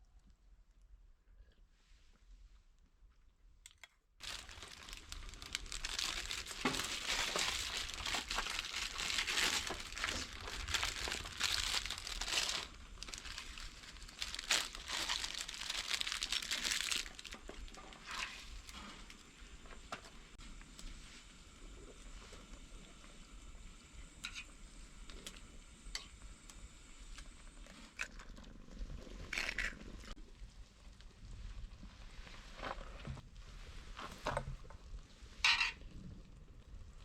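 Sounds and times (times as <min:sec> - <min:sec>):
material crinkling and rustling: 0:04.2 - 0:19.3.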